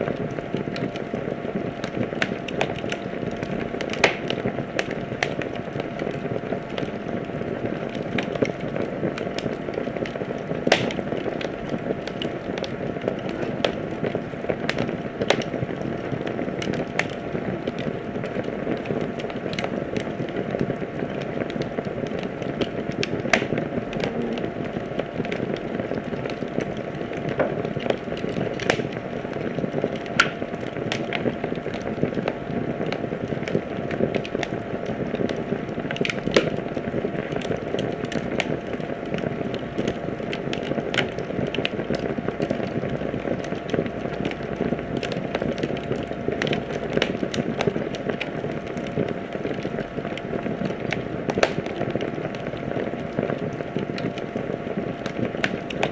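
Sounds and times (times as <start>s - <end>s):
fire popping: 0.0s - 55.9s
wood fire crackling: 0.0s - 55.9s.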